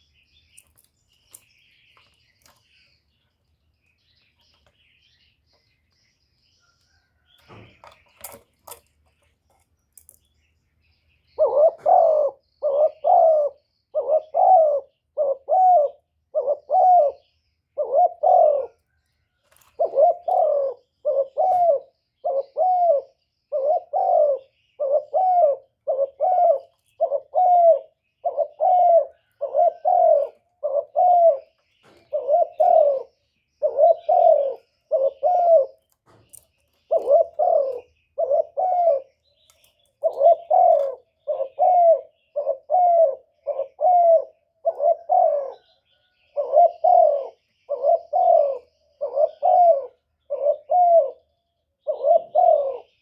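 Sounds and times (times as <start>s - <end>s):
dove cooing: 11.3s - 35.9s, 36.8s - 39.4s, 40.0s - 53.0s.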